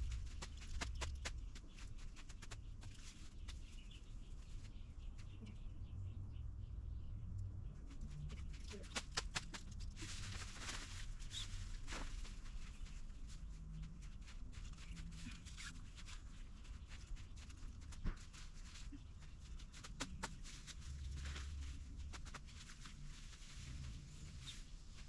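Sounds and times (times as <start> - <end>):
fabric rustling: 8.7 - 25.0.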